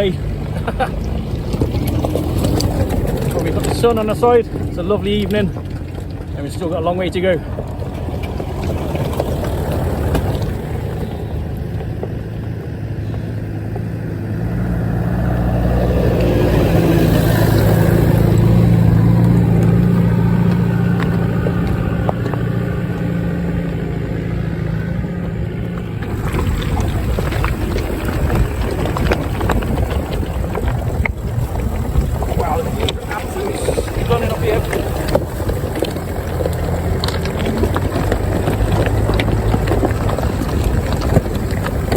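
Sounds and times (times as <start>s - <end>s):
off-road vehicle engine running: 0.0s - 41.9s.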